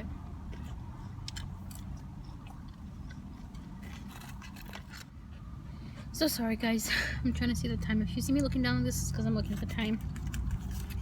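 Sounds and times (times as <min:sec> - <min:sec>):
person chewing food: 0:00.2 - 0:06.1.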